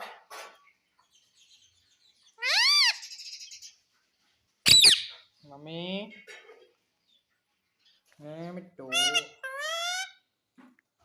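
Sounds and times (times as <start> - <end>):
parrot shrill calls: 2.4 - 3.7, 4.6 - 5.2, 8.9 - 10.2.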